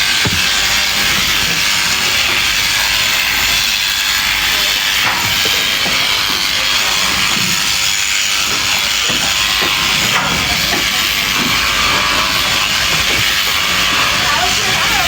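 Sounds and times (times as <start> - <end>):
shearing handpiece cutting fleece: 0.0 - 15.0.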